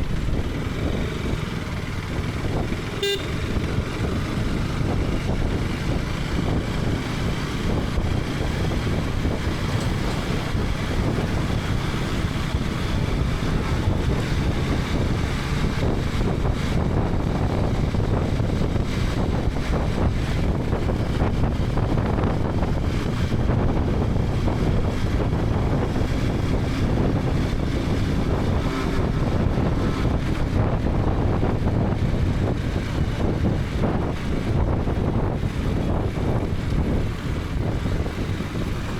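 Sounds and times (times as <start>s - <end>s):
motorcycle engine running: 0.0s - 38.9s
road noise: 0.0s - 38.9s
wind rushing over microphone: 0.0s - 38.9s.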